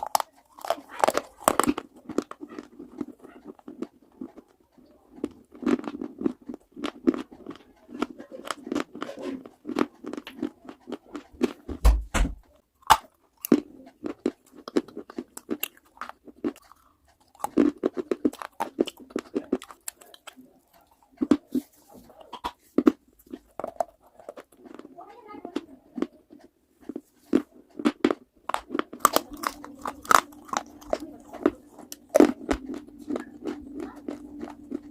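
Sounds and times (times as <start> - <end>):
crunching hard baked clay: 0.0 - 34.9.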